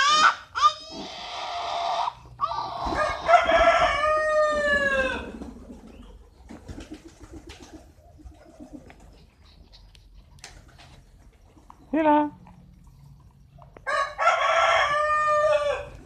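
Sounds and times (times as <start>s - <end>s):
rooster crowing: 0.0s - 5.4s, 13.8s - 16.0s.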